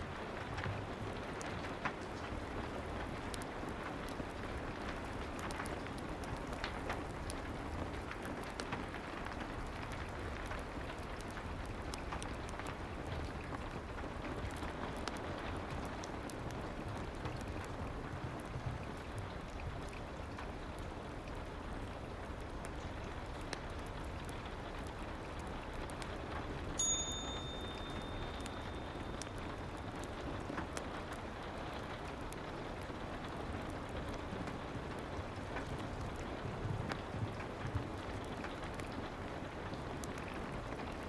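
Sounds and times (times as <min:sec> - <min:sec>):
fireplace crackling: 0:00.0 - 0:41.0
soft rain: 0:00.0 - 0:41.0
high timer chime: 0:26.8 - 0:29.3.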